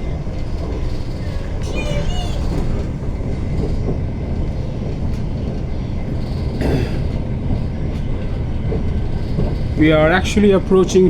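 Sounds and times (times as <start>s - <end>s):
train wheel squeal: 0.0s - 4.2s
train wheels rumbling on track: 0.0s - 11.0s.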